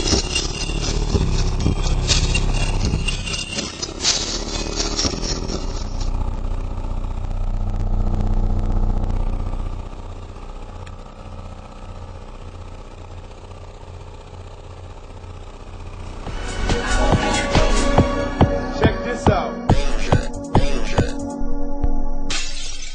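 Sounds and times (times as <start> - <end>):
subwoofer playing deep bass: 0.0 - 10.3, 16.1 - 22.4.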